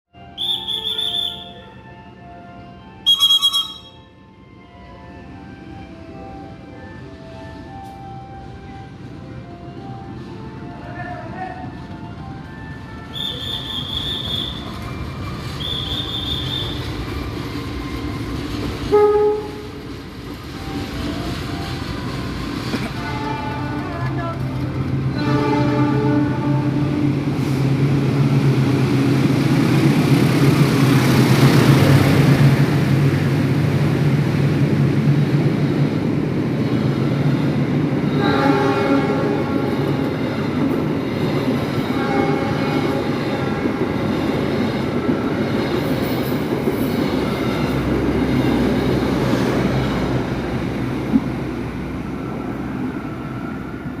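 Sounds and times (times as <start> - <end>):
train horn: 0.3 - 2.2, 3.0 - 4.2, 13.0 - 14.8, 15.6 - 16.9, 18.8 - 19.8, 22.9 - 24.4, 25.1 - 27.6, 38.0 - 40.2, 41.8 - 44.0
wheels rumbling on rails: 11.7 - 54.0.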